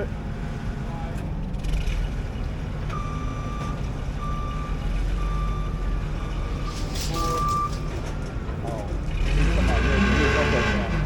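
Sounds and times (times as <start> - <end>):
engine rumble: 0.0 - 11.0
backup alarm beeping: 2.9 - 8.6.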